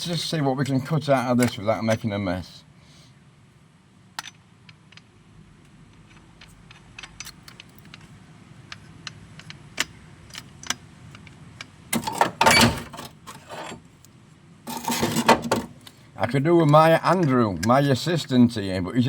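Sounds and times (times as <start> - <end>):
metal tools clattering: 12.0 - 13.9, 14.7 - 15.7.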